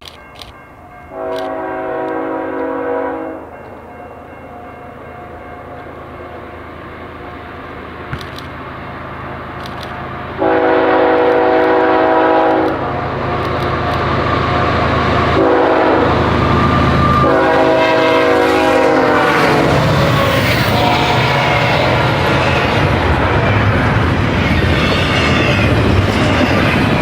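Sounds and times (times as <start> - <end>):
train rumble: 0.0 - 27.0
train chord horn: 1.1 - 7.5, 10.4 - 23.8.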